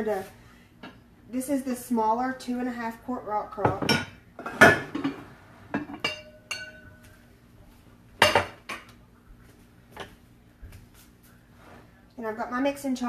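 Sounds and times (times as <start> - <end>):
kitchenware clinking and knocking: 3.6 - 7.0, 8.2 - 8.9.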